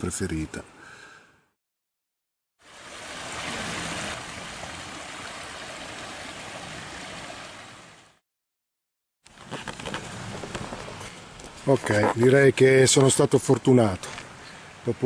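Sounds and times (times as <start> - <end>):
river water rushing: 2.6 - 8.2.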